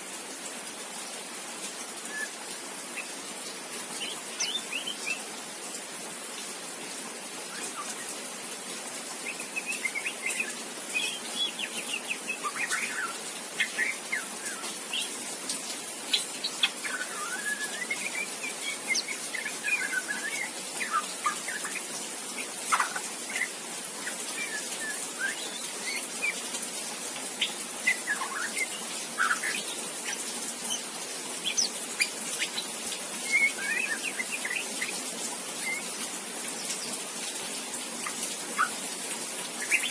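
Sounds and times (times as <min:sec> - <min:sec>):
young bird chirping and twittering: 0:03.9 - 0:05.3, 0:07.5 - 0:08.2, 0:09.2 - 0:15.3, 0:16.0 - 0:26.6, 0:27.2 - 0:36.0, 0:38.0 - 0:39.9.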